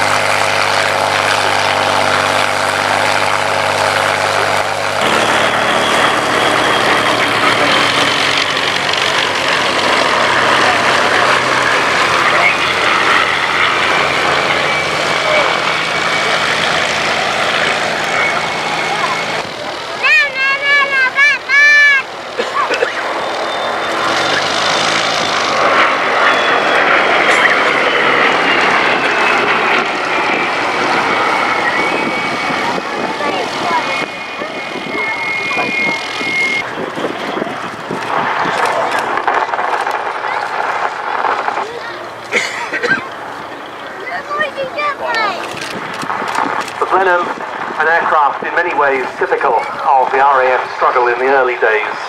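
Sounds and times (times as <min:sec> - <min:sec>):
piston aircraft engines droning: 0:00.0 - 0:52.0.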